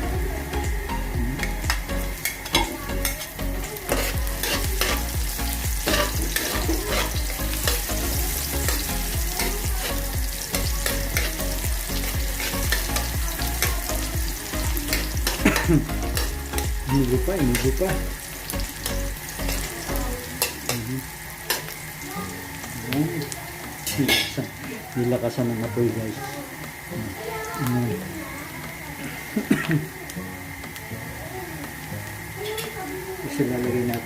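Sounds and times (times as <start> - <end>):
onion sizzling in oil: 0.0 - 34.0
spatula scraping pan: 2.2 - 13.8.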